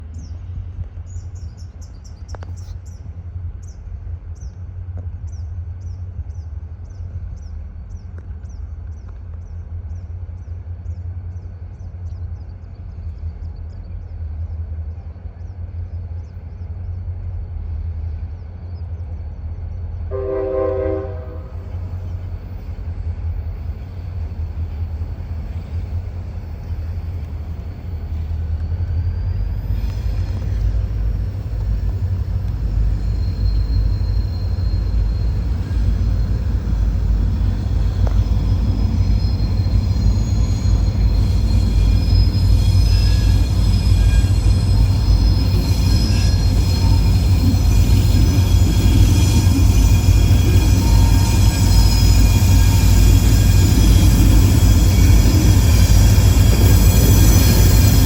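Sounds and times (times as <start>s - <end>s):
train rumbling: 0.0s - 58.0s
train horn blast: 20.1s - 21.8s
faint high chirps: 23.6s - 48.5s.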